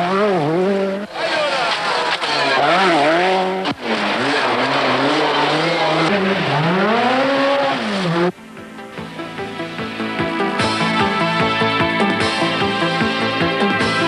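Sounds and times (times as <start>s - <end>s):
rally car engine revving: 0.0s - 8.4s.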